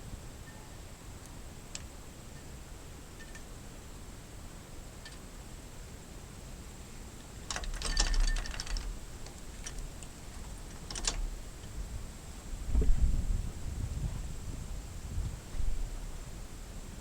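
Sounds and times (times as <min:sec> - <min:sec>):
rapid light clicking and rattling: 0:03.1 - 0:03.6, 0:05.0 - 0:05.4, 0:07.2 - 0:11.8.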